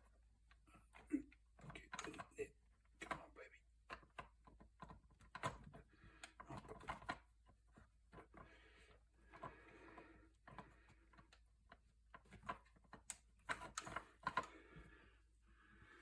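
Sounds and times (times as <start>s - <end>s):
small parts clicking and rubbing: 3.9s - 14.9s.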